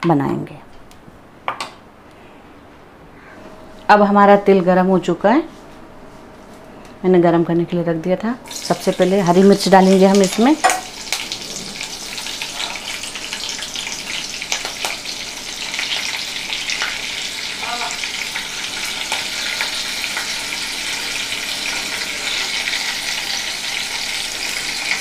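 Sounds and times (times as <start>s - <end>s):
chillies sizzling in hot oil: 8.5s - 25.0s.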